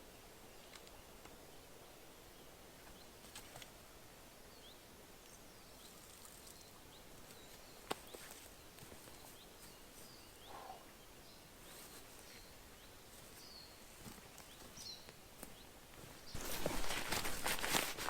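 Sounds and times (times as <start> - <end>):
faint bird chirps: 9.1 - 13.8
brief rustle: 16.3 - 18.0.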